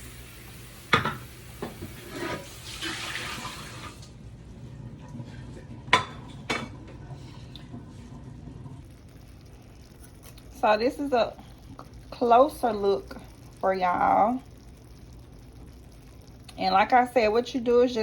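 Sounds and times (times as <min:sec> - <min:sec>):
water running from tap: 0:00.0 - 0:04.1, 0:08.8 - 0:18.0
low steady hum: 0:03.4 - 0:18.0.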